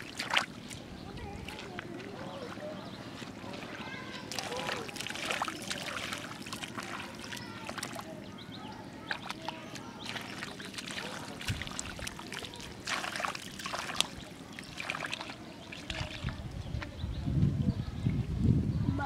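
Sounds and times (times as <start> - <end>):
water trickling and dripping: 0.0 - 1.9, 3.6 - 8.1, 9.1 - 16.5
hands splashing in muddy water: 0.0 - 2.0, 3.2 - 8.1, 9.1 - 16.4.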